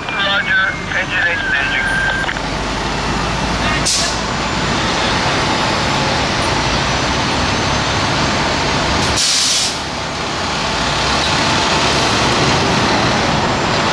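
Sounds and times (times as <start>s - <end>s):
diesel engine running: 0.0s - 13.9s
air brakes hissing: 3.8s - 4.3s, 9.0s - 9.9s.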